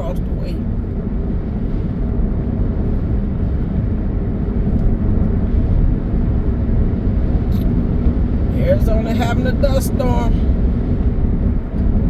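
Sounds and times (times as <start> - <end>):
car engine: 0.0 - 12.0
gusting wind: 0.0 - 12.0
road noise: 0.0 - 12.0.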